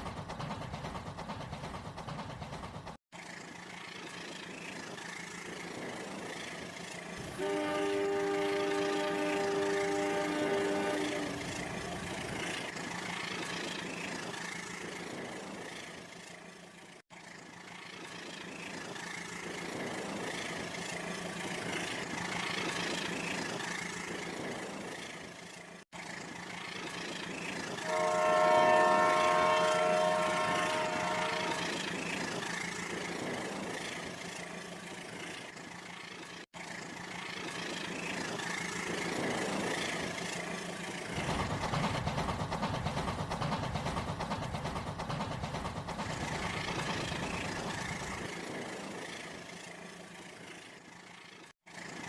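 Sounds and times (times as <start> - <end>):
train running: 0.0 - 52.0
train horn long blast: 7.2 - 11.8, 27.8 - 32.0.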